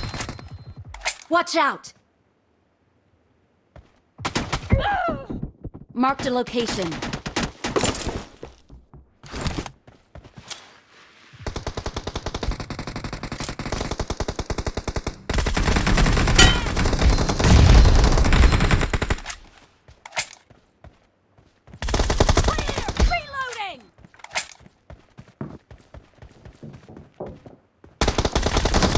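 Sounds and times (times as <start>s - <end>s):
video game gunfire: 15.3s - 19.3s.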